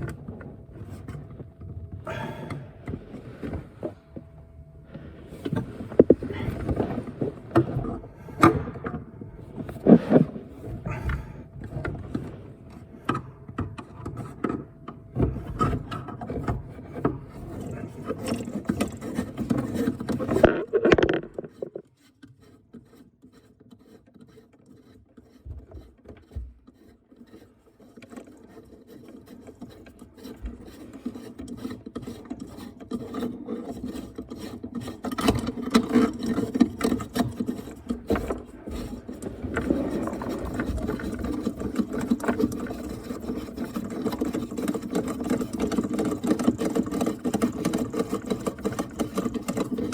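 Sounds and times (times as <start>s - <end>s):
hand tools scraping metal fittings: 15.4s - 49.9s.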